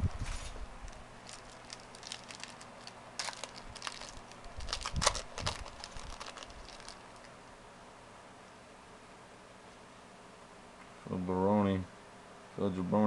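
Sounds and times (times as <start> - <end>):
cards being handled: 0.9 - 7.3
foil pack crinkling: 0.9 - 7.3.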